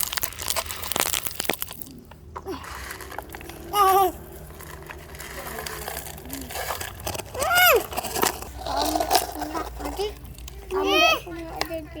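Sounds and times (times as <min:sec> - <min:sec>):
faint background noise: 0:00.0 - 0:12.0
child's high-pitched vocal sound: 0:03.6 - 0:04.3, 0:07.3 - 0:07.9, 0:08.7 - 0:11.4.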